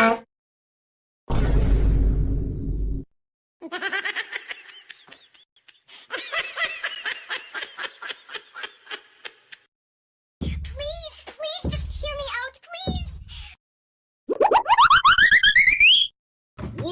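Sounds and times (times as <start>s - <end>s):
person laughing: 3.6s - 9.7s.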